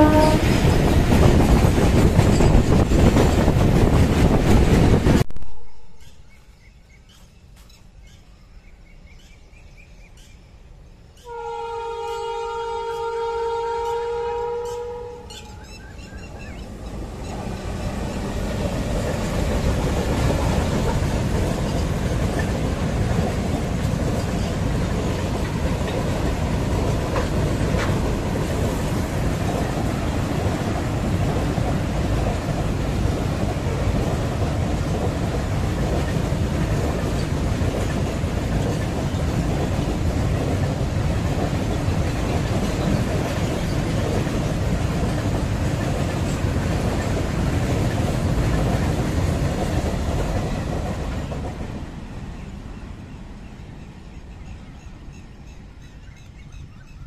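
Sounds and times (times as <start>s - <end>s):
train wheels rumbling on rail: 0.0s - 5.3s, 11.2s - 57.0s.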